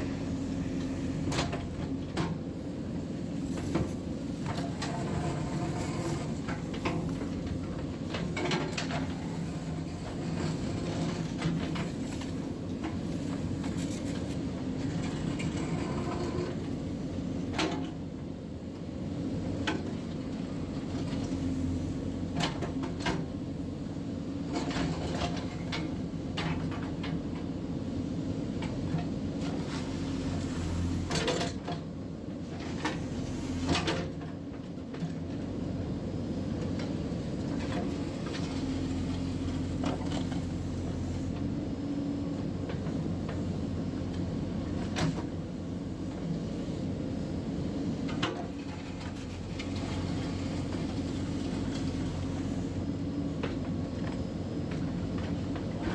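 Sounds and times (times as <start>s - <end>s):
diesel engine running: 0.0s - 17.4s.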